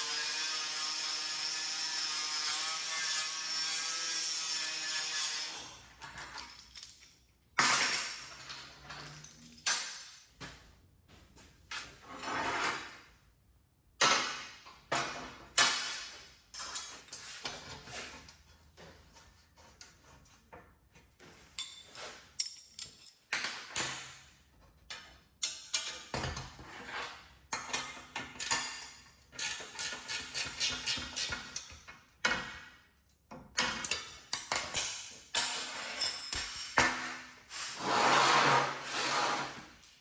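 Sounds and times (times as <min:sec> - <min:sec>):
metal parts clanking: 0:06.0 - 0:10.3
metal tools scraping: 0:16.5 - 0:23.4, 0:35.4 - 0:40.0.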